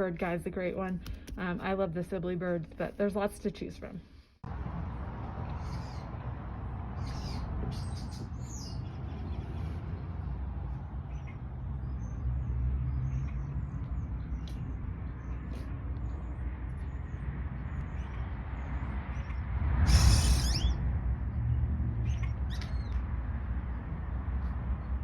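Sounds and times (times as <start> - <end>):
steady low rumble: 4.4 - 25.0
small birds chirping: 5.4 - 20.8, 22.0 - 23.1.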